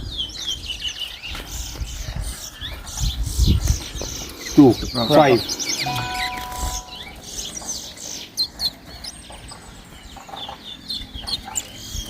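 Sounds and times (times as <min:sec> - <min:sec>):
finch chirping: 0:03.0 - 0:12.0.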